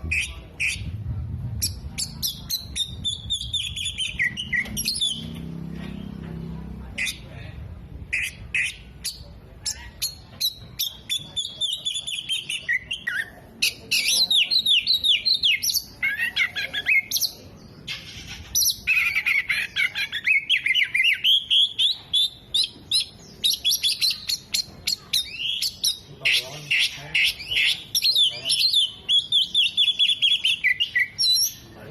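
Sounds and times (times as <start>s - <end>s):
songbird chirps whistles and trills: 27.4s - 31.7s.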